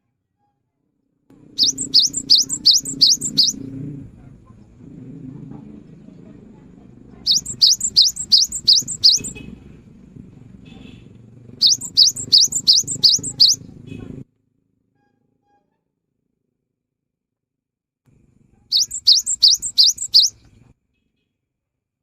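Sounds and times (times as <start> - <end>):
bird singing high rapid notes: 1.4 - 3.8, 7.2 - 9.6, 11.5 - 13.7, 18.7 - 20.4.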